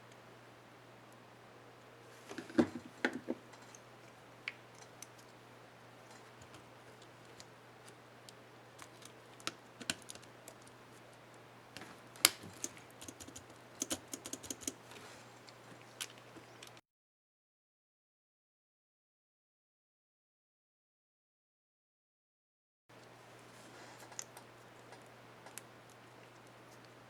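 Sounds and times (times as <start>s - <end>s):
laptop keyboard clicks: 8.8s - 10.7s, 12.2s - 14.8s.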